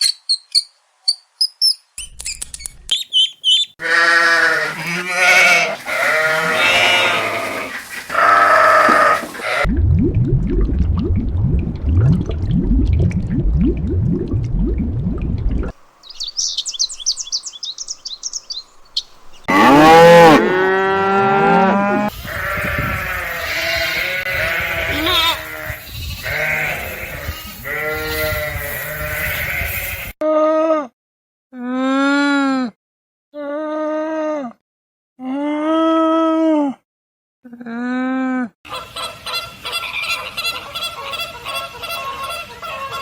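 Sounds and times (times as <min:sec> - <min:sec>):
high chirping: 0:00.0 - 0:03.8, 0:16.0 - 0:19.5
loud wavering bleats: 0:03.8 - 0:09.7, 0:19.5 - 0:30.2.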